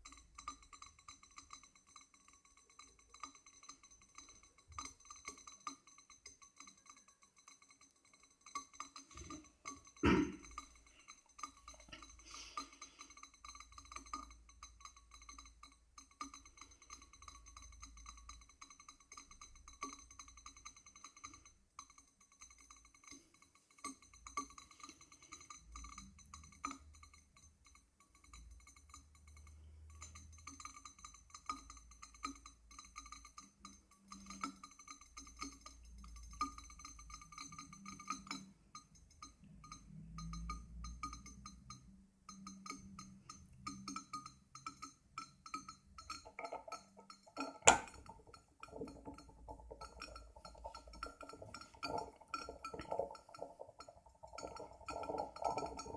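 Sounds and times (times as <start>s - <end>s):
coffee maker ticking and clinking: 0.0s - 55.9s.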